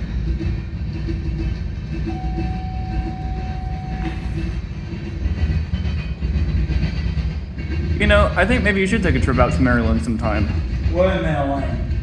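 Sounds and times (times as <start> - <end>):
freight cars rumbling past: 0.0 - 12.0
steady high tone: 2.0 - 4.7.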